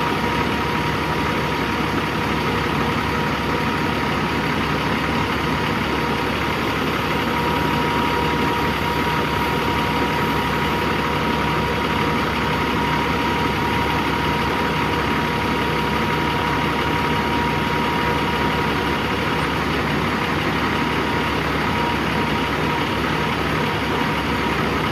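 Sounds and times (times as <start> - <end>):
diesel truck engine idling: 0.0 - 24.9
high whine: 5.9 - 24.1.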